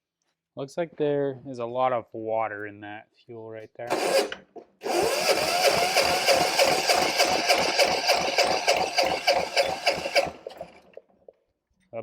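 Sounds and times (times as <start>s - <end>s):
diesel engine cranking: 3.9s - 11.0s
electric starter whine: 3.9s - 11.0s.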